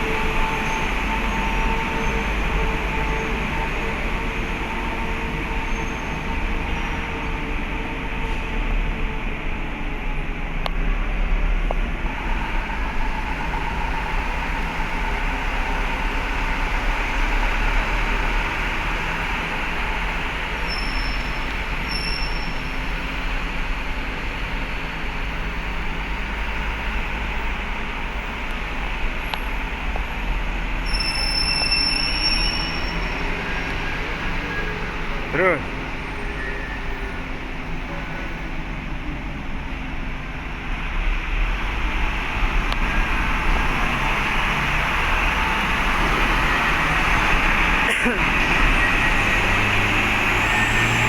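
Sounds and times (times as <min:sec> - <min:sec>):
engines and machinery rumbling: 0:00.0 - 0:51.0
thin metallic squeal: 0:20.7 - 0:22.7, 0:30.8 - 0:34.8.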